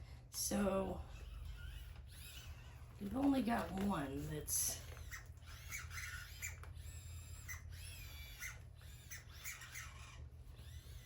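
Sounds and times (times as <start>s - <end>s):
robot dog joint squeaking: 1.1s - 3.0s, 4.8s - 11.0s.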